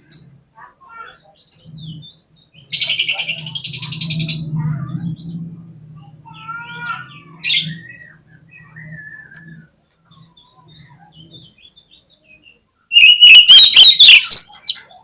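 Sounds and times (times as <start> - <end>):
bird chirping and rasping calls: 0.0 - 15.0
low hum: 1.8 - 11.3.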